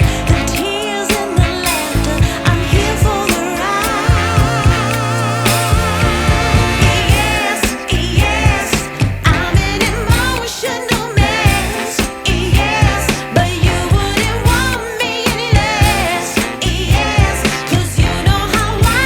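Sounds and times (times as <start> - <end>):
sung melody over steady beat: 0.0 - 10.5.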